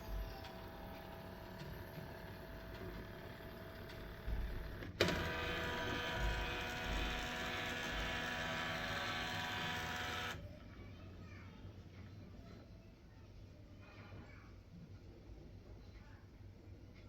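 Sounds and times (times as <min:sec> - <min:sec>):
printer motor whine: 0:00.0 - 0:10.4
printer click: 0:00.2 - 0:10.4.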